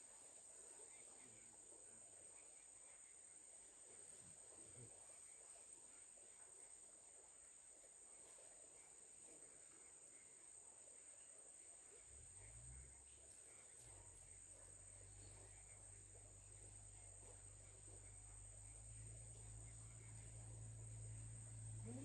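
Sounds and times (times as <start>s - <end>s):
crickets chirring: 0.0s - 22.0s
low hum: 11.9s - 22.0s.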